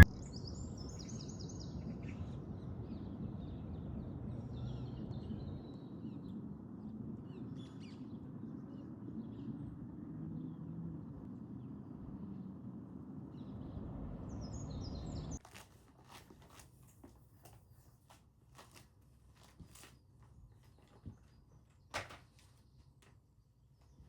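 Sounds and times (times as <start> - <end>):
low outdoor rumble: 0.0 - 15.4
small birds chirping: 0.0 - 15.4.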